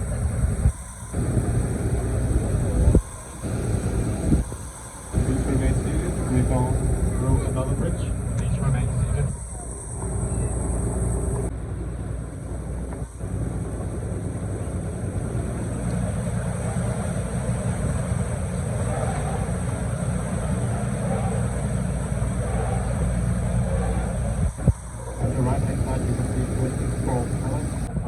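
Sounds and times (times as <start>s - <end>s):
water wash: 0.0s - 7.5s, 25.2s - 27.9s
boat engine humming: 0.0s - 11.5s, 25.1s - 28.0s
wind: 0.0s - 28.0s.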